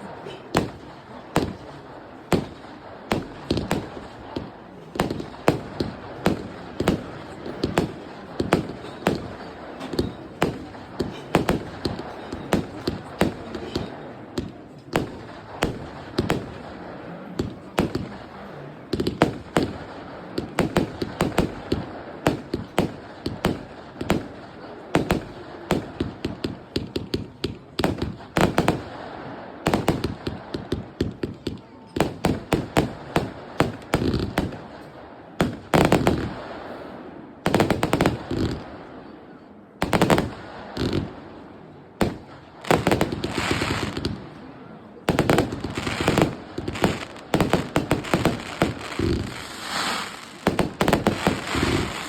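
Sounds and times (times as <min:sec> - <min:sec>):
firework bangs: 0:00.0 - 0:52.0
firework crackling hiss: 0:45.6 - 0:52.0.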